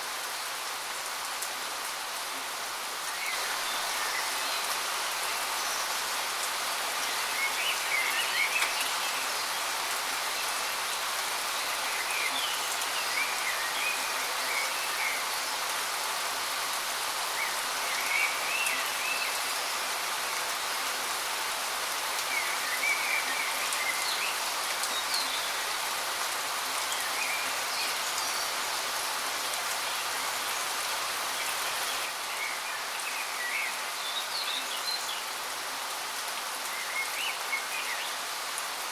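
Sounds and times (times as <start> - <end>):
songbirds chirping: 21.9 - 38.8.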